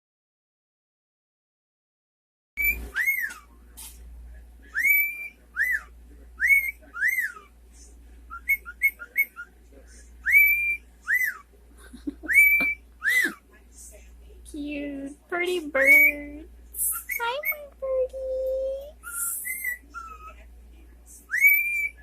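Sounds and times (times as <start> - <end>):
cockatiel whistling: 2.6 - 3.4, 4.7 - 7.5, 8.3 - 9.5, 10.2 - 11.4, 12.3 - 13.4, 19.0 - 20.4, 21.3 - 22.0.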